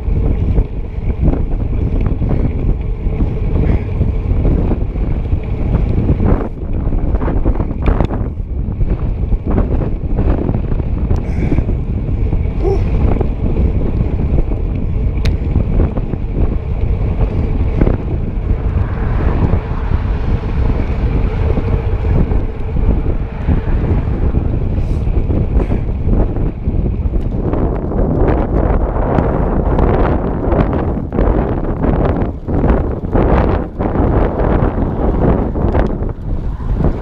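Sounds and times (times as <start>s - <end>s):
wind buffeting microphone: 0.0s - 37.0s
light ticks: 14.7s - 15.5s.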